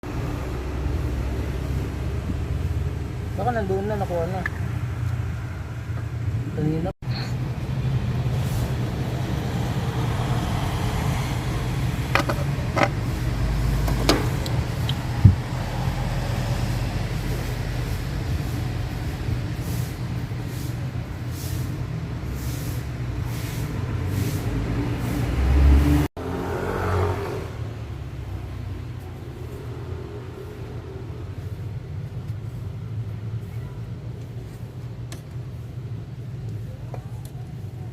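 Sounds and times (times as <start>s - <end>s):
vehicle engine running: 0.0s - 26.4s.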